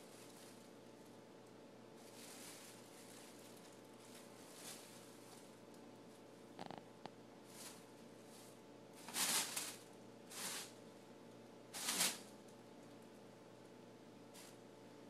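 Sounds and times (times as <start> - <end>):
shopping bags crinkling: 2.0 - 5.4.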